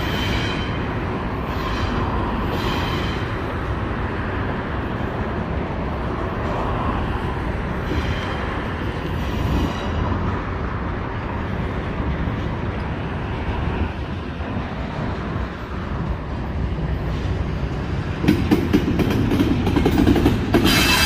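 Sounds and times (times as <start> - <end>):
freight train cars rolling: 0.0 - 21.0
wheel flange squeals: 20.5 - 21.0.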